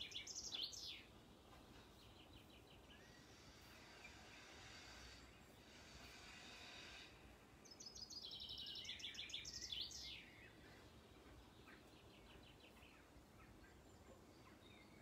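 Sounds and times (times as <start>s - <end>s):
bird singing: 0.0s - 4.5s, 7.6s - 15.0s
faint high hiss: 2.6s - 10.6s.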